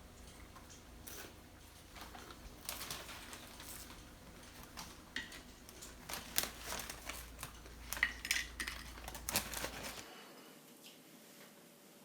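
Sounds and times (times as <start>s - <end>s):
dishes clicking and clinking: 4.0s - 10.0s.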